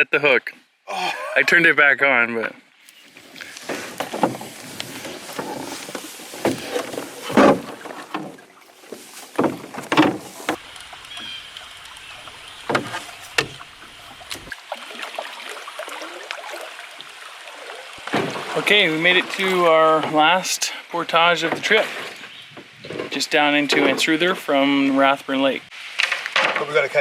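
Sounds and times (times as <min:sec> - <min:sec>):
canoe paddle splashing in water: 0:02.9 - 0:20.6.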